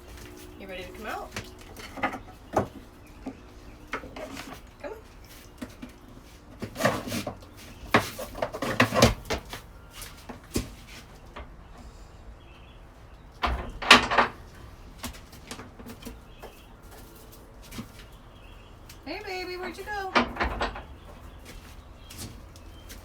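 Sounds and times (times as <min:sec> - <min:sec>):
goat knocking and clattering: 0:05.4 - 0:11.6, 0:20.0 - 0:23.0.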